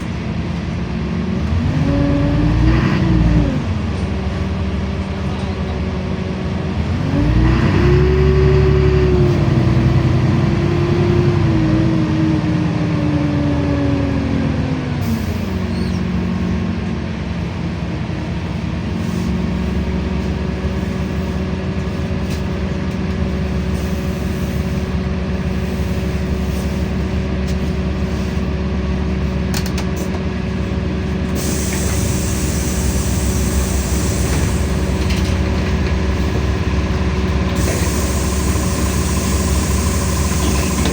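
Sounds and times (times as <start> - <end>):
bus engine whining: 0.0 - 40.9.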